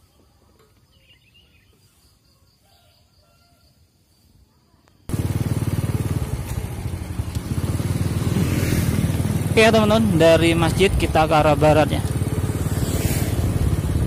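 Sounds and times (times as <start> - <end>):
faint outdoor ambience: 0.0 - 14.0
motorcycle engine running: 5.1 - 14.0.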